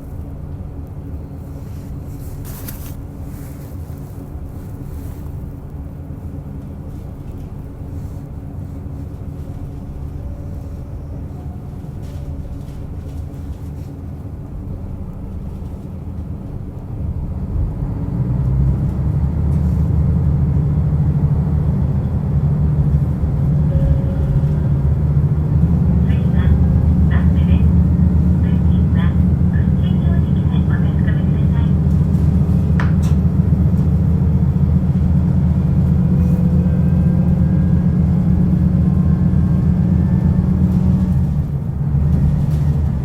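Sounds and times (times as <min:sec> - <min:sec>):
diesel engine humming: 0:00.0 - 0:43.0
train wheels rumbling on rail: 0:00.0 - 0:43.0.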